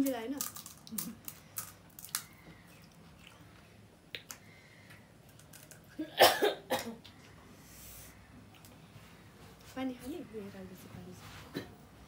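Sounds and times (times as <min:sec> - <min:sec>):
crisp shells crunching while chewed: 0:00.4 - 0:03.4.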